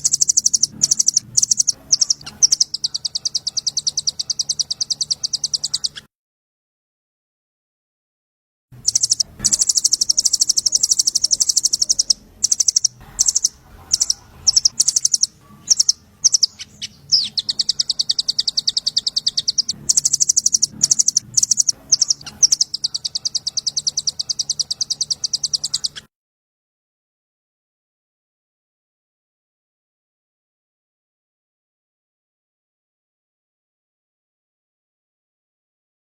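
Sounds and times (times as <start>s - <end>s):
songbird singing rapid trills: 0.0s - 6.0s, 8.8s - 26.0s.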